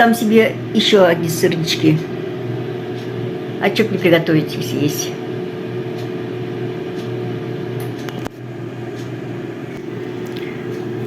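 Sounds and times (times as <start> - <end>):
appliance motor humming: 9.7 - 11.0.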